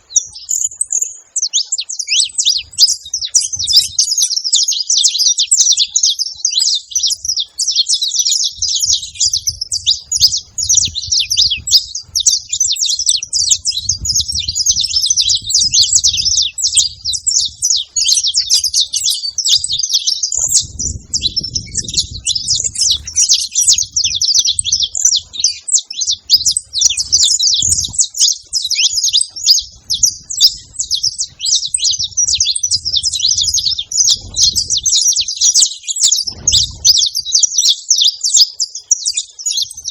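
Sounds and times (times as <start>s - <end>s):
finch singing high chirps: 0.0s - 39.9s.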